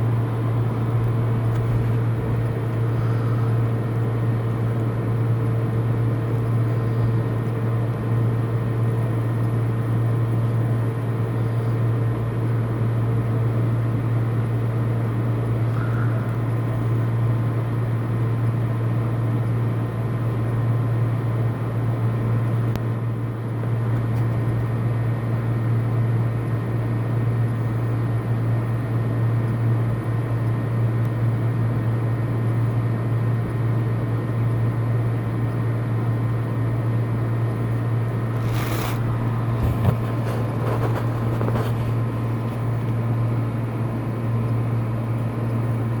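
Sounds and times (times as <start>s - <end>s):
steady low hum: 0.0s - 46.0s
brief noises: 38.4s - 40.9s.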